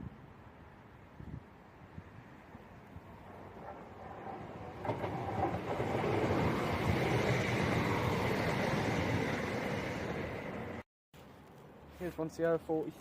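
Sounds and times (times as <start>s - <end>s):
diesel train passing at speed: 2.4s - 10.8s.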